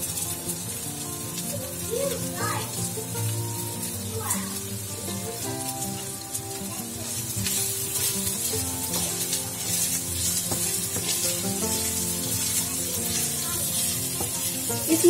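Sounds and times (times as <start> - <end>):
food sizzling in a pan: 0.0 - 15.0
instrumental background music: 0.0 - 15.0
stirring knocks: 7.6 - 15.0.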